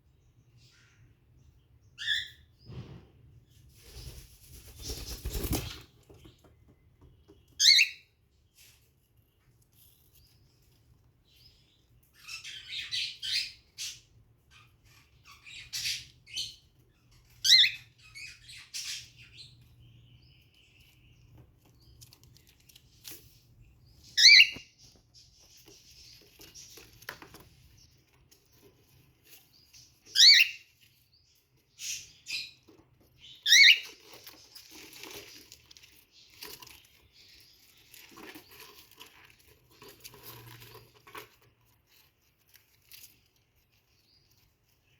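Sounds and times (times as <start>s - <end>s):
wing-flapping and rustling: 3.6s - 7.4s
cockatiel calls: 7.6s - 8.1s, 17.4s - 19.4s, 24.2s - 24.7s, 30.1s - 30.7s, 33.2s - 33.8s.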